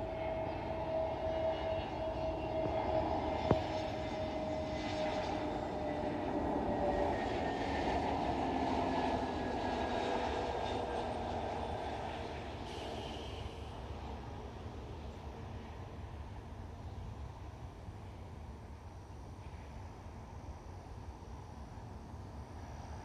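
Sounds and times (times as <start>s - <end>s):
jet engine rush: 0.0s - 14.8s.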